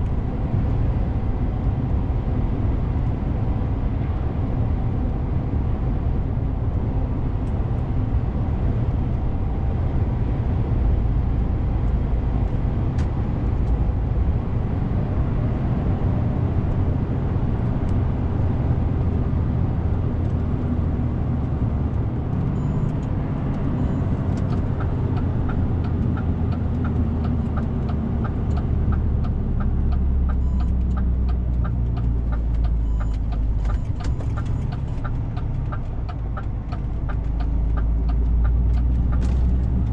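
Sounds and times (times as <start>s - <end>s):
truck diesel engine rumble: 0.0s - 39.9s
regular ticking: 23.8s - 39.9s.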